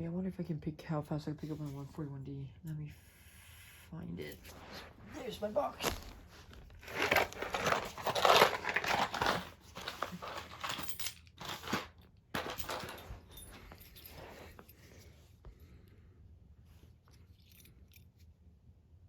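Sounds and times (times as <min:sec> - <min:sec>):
rustling and crinkling: 0:04.2 - 0:15.8.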